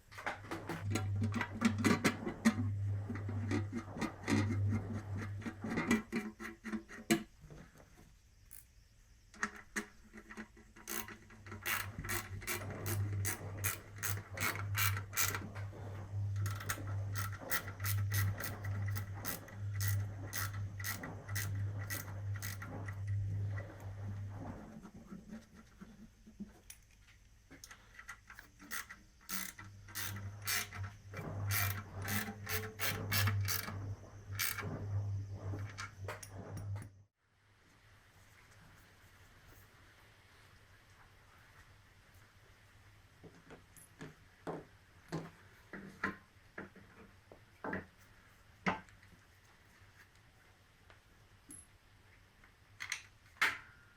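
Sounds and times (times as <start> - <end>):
ratchet wrench clicking: 10.8 - 15.4, 16.5 - 22.6, 28.3 - 30.8, 31.5 - 33.7.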